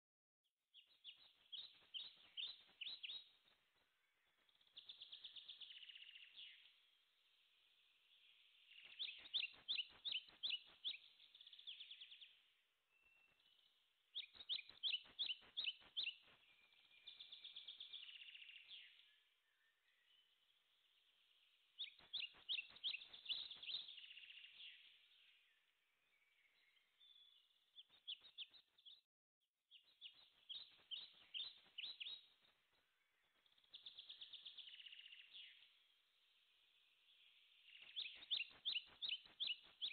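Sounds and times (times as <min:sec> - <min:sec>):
songbird chirps and trills: 0:00.7 - 0:29.0, 0:29.7 - 0:39.9.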